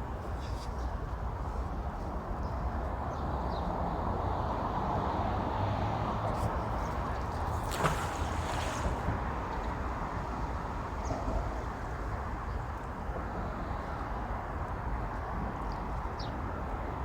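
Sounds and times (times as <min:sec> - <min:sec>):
road traffic hum: 0:03.1 - 0:12.5.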